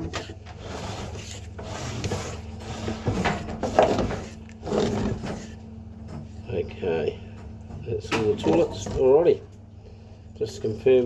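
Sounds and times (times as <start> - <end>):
cable scraping through pipe: 0.0 - 5.6
low electrical hum: 0.0 - 11.0.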